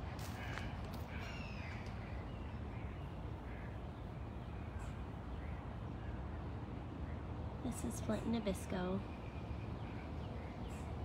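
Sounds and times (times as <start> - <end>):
faint bird calls: 0.0 - 7.3.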